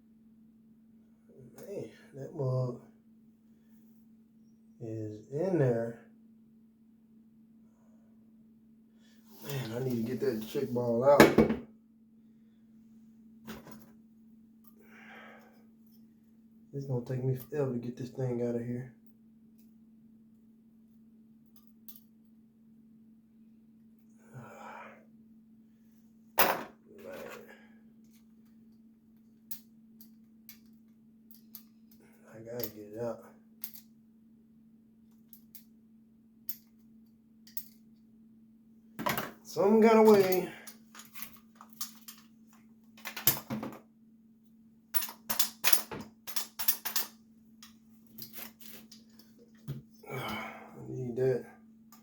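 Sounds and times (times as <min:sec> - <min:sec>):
faint steady hum: 0:00.0 - 0:52.0
steady low hum: 0:43.9 - 0:52.0
breathy sigh: 0:50.0 - 0:50.8.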